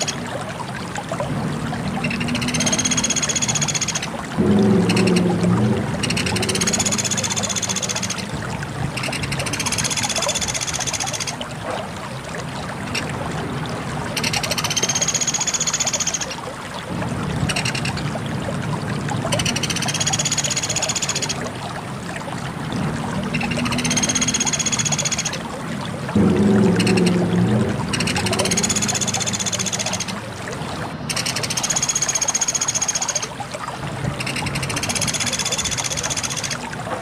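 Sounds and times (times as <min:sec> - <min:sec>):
woodpecker chattering trills: 0:06.0 - 0:08.2, 0:27.9 - 0:30.2.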